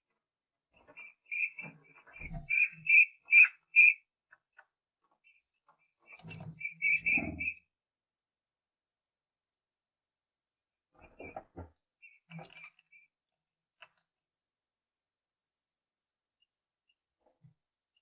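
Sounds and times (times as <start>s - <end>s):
bird piping whistled calls: 1.0s - 4.0s, 6.1s - 7.6s.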